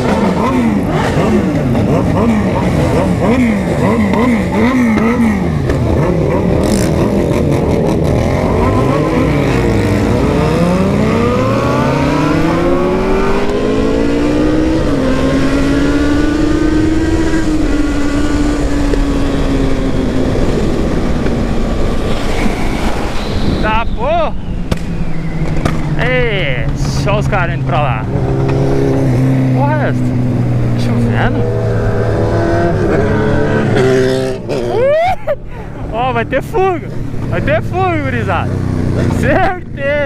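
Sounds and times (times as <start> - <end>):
motorcycle engine accelerating: 0.0 - 23.5, 24.4 - 35.0, 35.8 - 40.0
other motorcycle engines running: 0.0 - 34.9, 35.5 - 40.0
motorcycle engines revving: 0.0 - 40.0.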